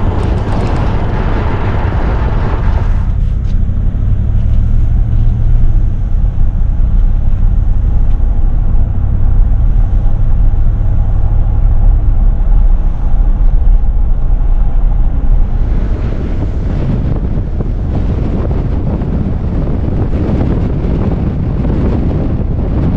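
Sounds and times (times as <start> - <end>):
vehicle engine and road rumble: 0.0 - 22.9
wind buffeting microphone: 0.0 - 22.9.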